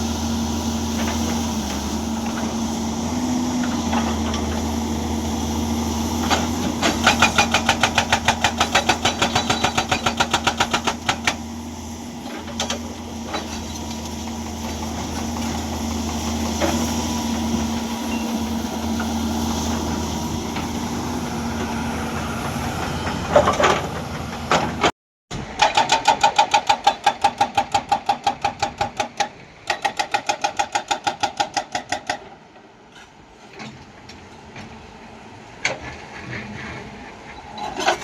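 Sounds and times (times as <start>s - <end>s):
excavator diesel engine running: 0.0s - 31.2s
hydraulic breaker hammering rock: 6.2s - 11.4s, 23.0s - 32.4s.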